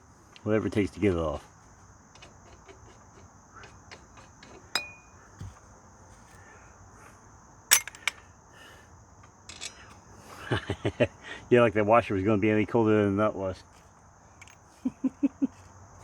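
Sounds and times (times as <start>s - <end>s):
insects chirring: 0.0s - 16.0s
metal clinks: 4.4s - 5.6s, 7.7s - 8.2s, 9.2s - 10.3s, 14.4s - 14.6s.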